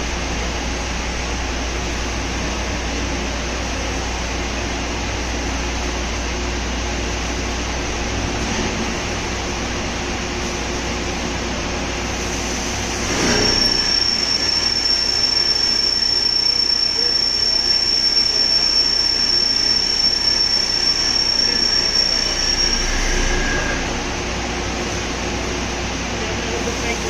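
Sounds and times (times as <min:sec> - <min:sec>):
drilling machine running: 0:07.9 - 0:26.6
high-pitched squeal: 0:12.6 - 0:24.9.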